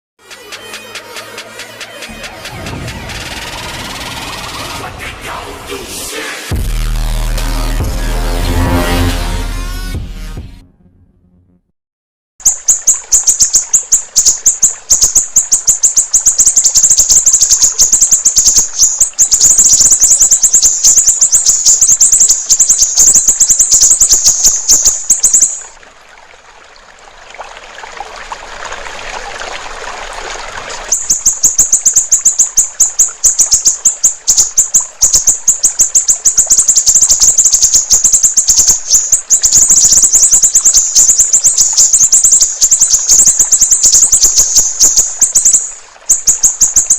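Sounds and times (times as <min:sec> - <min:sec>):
bird chirping high-pitched: 0:12.4 - 0:25.7, 0:30.9 - 0:46.9
water trickling: 0:12.4 - 0:46.9.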